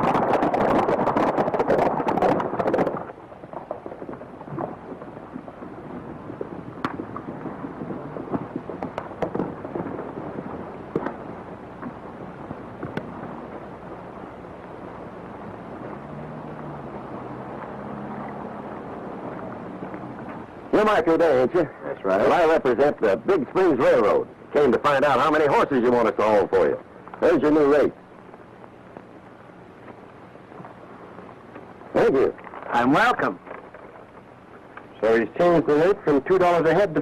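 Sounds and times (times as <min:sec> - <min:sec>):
horses hooves galloping: 0:00.0 - 0:37.0
quiet hiss: 0:00.0 - 0:37.0.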